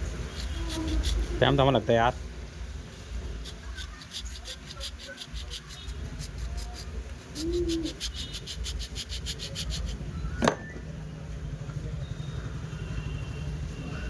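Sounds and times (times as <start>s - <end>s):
rapid scraping strokes: 0.0s - 1.8s, 3.2s - 10.1s.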